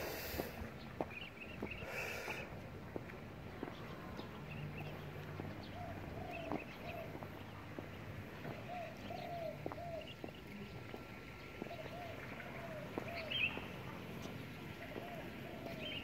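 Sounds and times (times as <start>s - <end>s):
bird calling: 5.6s - 10.8s, 11.4s - 16.0s.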